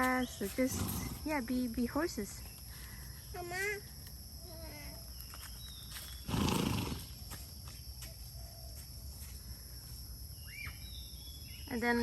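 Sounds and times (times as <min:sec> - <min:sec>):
insects buzzing: 0:00.0 - 0:12.0
horse snorting: 0:00.6 - 0:01.3, 0:06.2 - 0:07.2.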